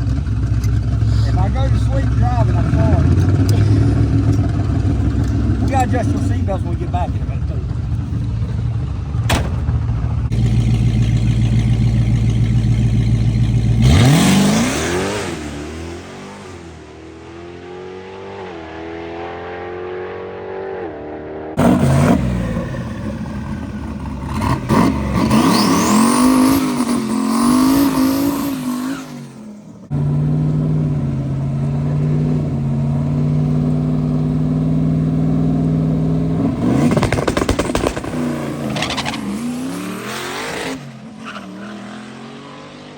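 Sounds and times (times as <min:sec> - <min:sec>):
drag racing engine idling: 0:00.0 - 0:13.9
car revving hard through gears: 0:13.5 - 0:16.6, 0:17.4 - 0:22.9, 0:24.3 - 0:42.9.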